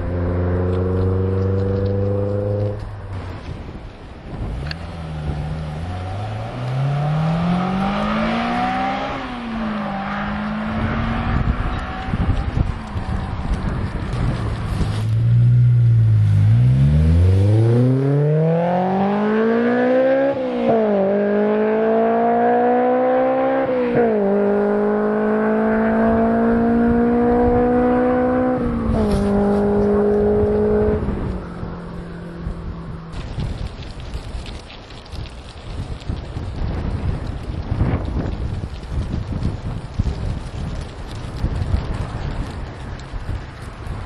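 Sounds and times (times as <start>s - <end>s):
car engine accelerating through gears: 0.0s - 2.9s, 4.6s - 33.1s.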